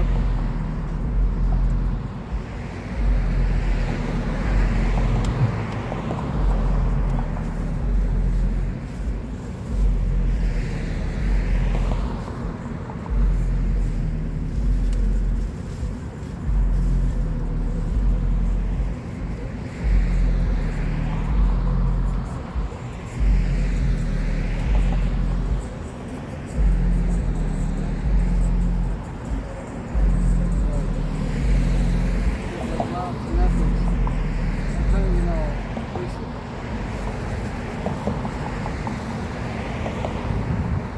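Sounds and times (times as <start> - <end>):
low mechanical hum with rumble: 0.0 - 25.7, 26.6 - 32.5.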